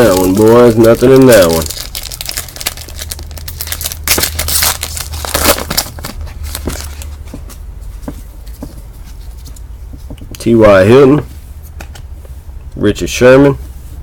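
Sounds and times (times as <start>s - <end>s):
foil wrapper crinkling and tearing: 0.0s - 7.1s
steady low hum: 0.0s - 14.0s.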